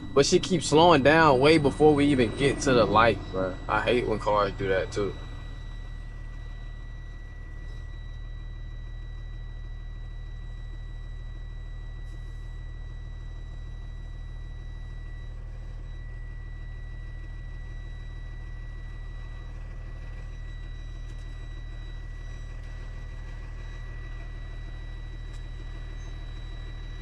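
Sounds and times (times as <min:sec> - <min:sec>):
faint high-pitched tone: 0:00.0 - 0:19.6
diesel engine drone in cab: 0:00.0 - 0:27.0.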